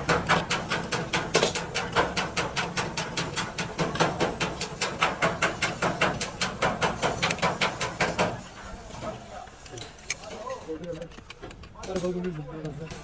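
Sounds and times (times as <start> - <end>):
rapid sharp taps: 0.0 - 8.4.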